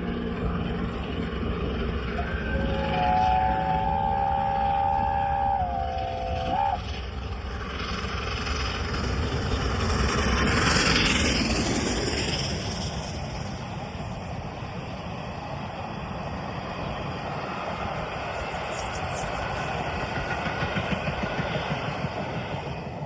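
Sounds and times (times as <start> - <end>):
steam train passing: 0.0 - 23.0
two-tone train whistle: 2.1 - 7.4.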